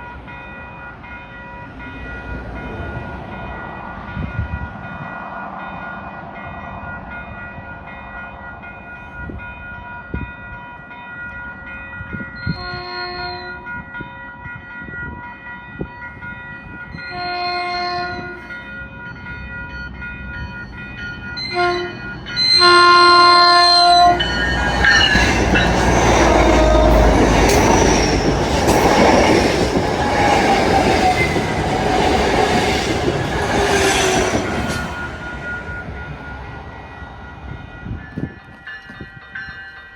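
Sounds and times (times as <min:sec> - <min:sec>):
train air horn blasts: 0:17.1 - 0:18.5, 0:21.4 - 0:28.4
train wheels rushing on rails: 0:18.1 - 0:39.4.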